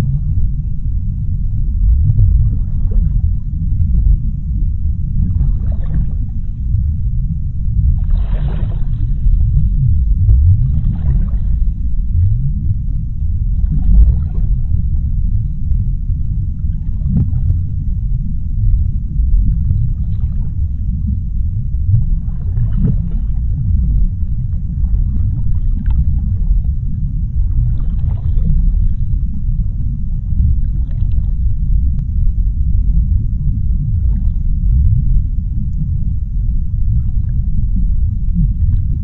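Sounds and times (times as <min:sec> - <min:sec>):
deep underwater rumble: 0:00.0 - 0:39.0
swishing underwater swells: 0:00.0 - 0:39.0.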